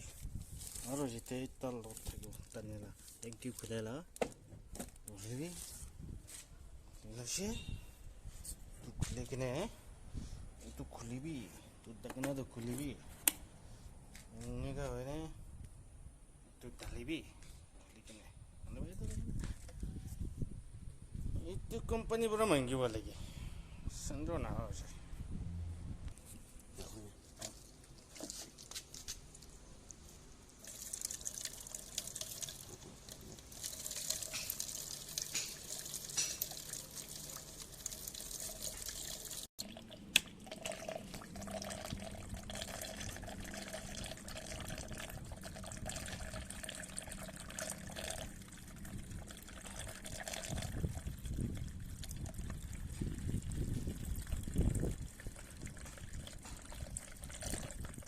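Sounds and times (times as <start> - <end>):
liquid trickling and splashing: 30.5 - 58.0.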